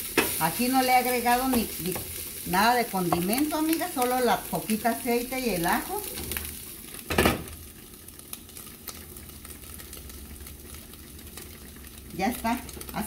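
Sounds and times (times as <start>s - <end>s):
meat sizzling in a frying pan: 0.0s - 13.0s.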